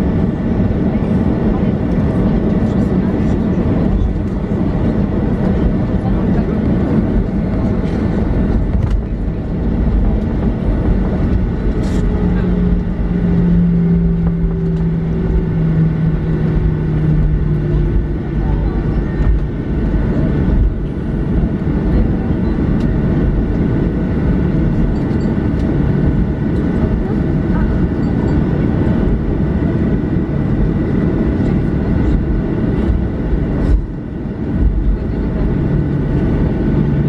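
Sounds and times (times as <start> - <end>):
airliner cabin rumble: 0.0 - 37.0
jet engines idling tones: 0.0 - 37.0.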